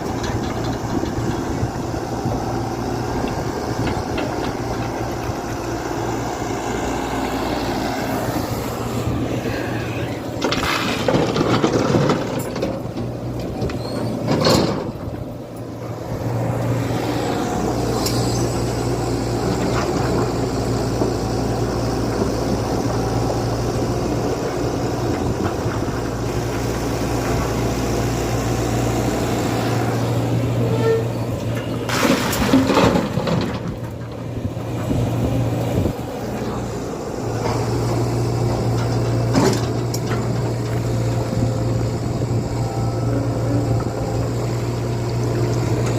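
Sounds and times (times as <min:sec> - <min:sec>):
excavator diesel engine running: 0:00.0 - 0:45.9
metal knocks and clanks: 0:10.4 - 0:15.3.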